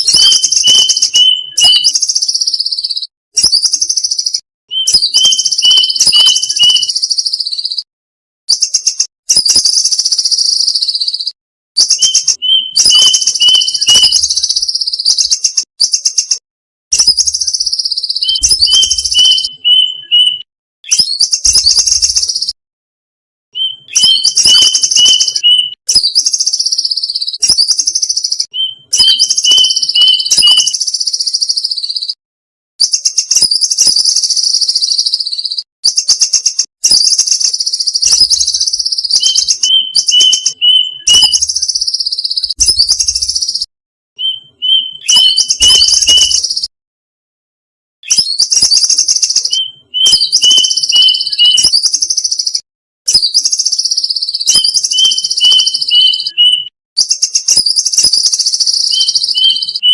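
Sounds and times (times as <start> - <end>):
cuckoo calls: 0.0 - 3.0, 4.7 - 7.7, 11.8 - 16.4, 17.0 - 22.6, 23.6 - 30.8, 37.2 - 43.6, 44.2 - 46.7, 48.4 - 52.0, 53.5 - 57.5, 58.6 - 59.9.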